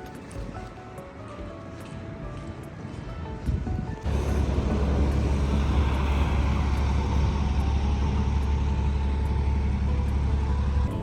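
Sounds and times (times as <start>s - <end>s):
road noise inside moving car: 4.0s - 11.0s.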